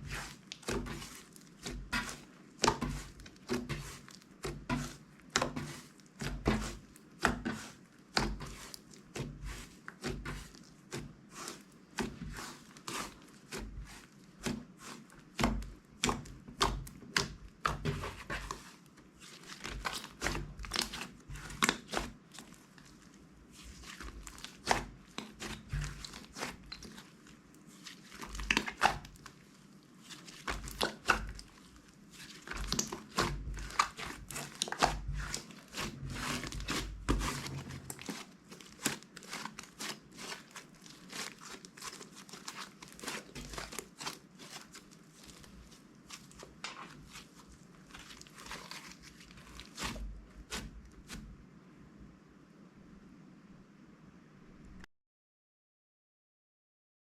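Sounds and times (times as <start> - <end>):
plastic bags crinkling: 30.0 - 50.0.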